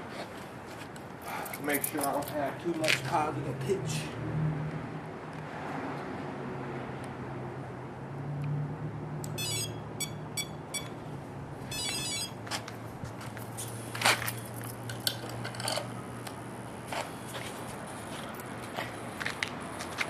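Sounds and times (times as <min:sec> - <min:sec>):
short electronic beeps: 0:09.3 - 0:11.0, 0:11.7 - 0:12.4.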